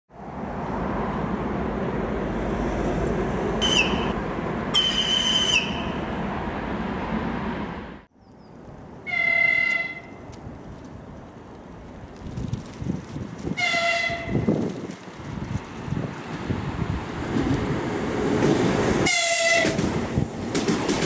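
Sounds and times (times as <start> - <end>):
short high whistle signals: 4.8 - 5.9
electric train horn: 9.1 - 10.2, 13.6 - 14.4, 19.0 - 19.8
train wheels rumbling on rails: 9.7 - 21.0.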